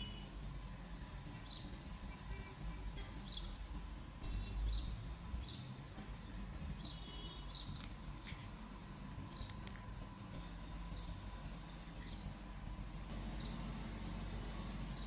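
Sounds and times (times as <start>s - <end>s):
bird chirping: 0.0s - 0.4s, 1.2s - 8.2s, 9.2s - 9.7s, 10.3s - 15.0s
low background rumble: 0.0s - 15.0s
faint clicks: 9.4s - 9.9s.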